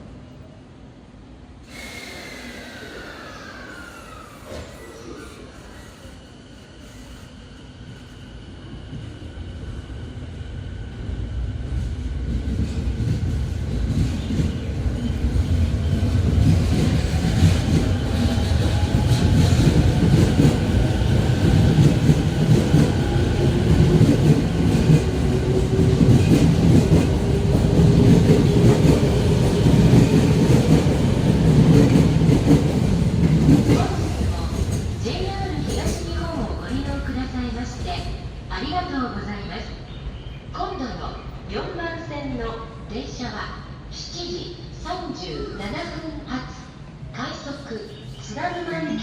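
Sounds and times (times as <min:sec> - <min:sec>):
train running noise: 0:01.7 - 0:39.0.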